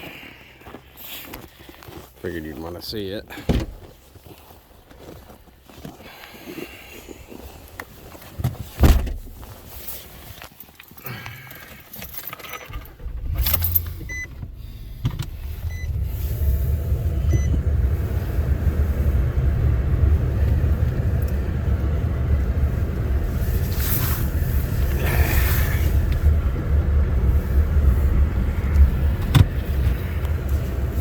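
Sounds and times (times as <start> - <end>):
vehicle engine rumbling: 0.0 - 10.4, 11.1 - 31.0
dashboard warning chime beeping: 12.4 - 17.6.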